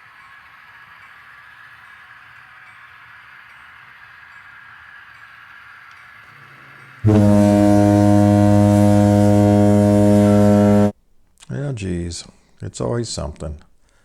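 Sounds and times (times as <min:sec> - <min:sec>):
faint steady hum: 0:00.0 - 0:14.0
loud buzzy horn tone: 0:07.0 - 0:10.9.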